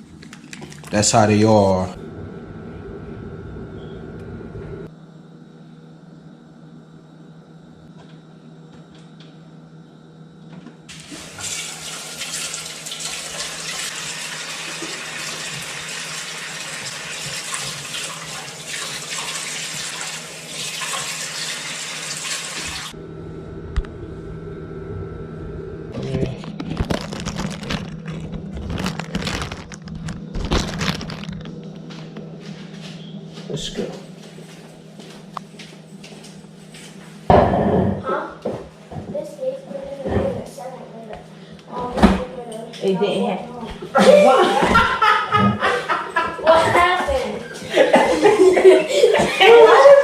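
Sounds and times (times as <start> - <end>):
tap water running: 10.9 - 23.0.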